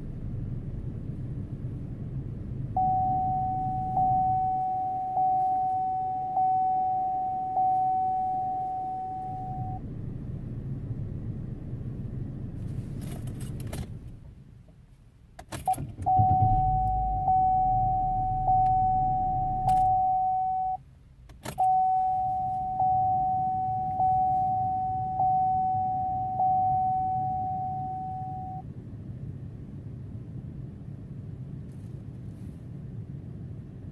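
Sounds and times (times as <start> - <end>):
low engine hum: 0.0 - 33.9
car warning chime dinging: 2.8 - 9.8, 15.6 - 20.8, 21.5 - 28.6
ignition clicks: 12.9 - 14.8, 15.4 - 28.6.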